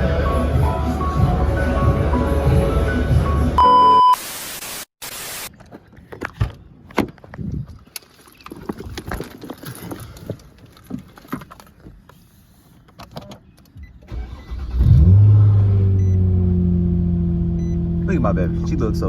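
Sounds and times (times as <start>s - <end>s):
car engine starting and idling: 14.0s - 19.0s.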